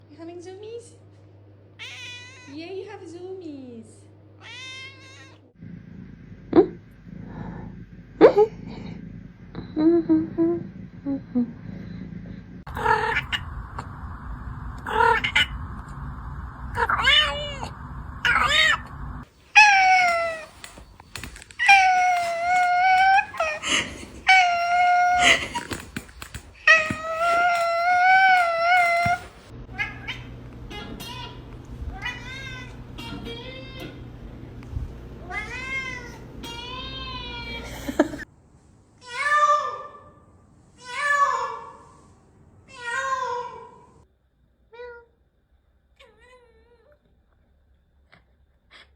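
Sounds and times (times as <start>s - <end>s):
cats meowing: 1.8s - 2.6s, 4.4s - 5.5s, 16.7s - 34.1s, 35.2s - 38.0s.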